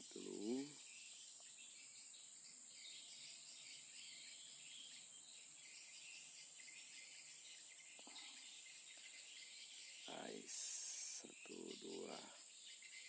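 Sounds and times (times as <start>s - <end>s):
high-pitched insect chorus: 0.0s - 13.0s
lower insect chirring: 0.0s - 13.0s.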